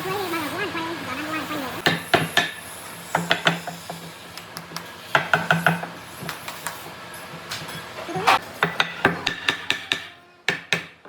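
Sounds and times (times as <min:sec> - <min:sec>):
tools knocking on wood: 0:01.8 - 0:06.8, 0:08.3 - 0:11.0.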